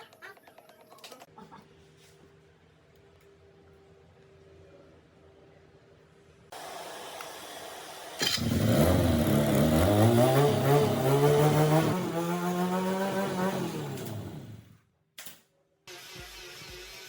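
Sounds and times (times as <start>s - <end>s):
motorcycle engine revving: 8.2s - 14.8s.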